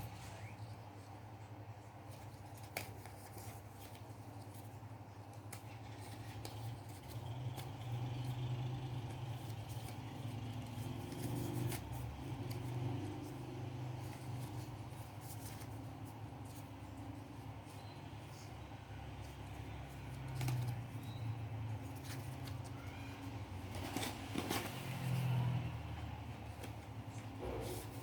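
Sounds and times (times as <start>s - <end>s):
paper rustling: 0.0s - 28.0s
scissors snipping paper: 5.2s - 17.1s.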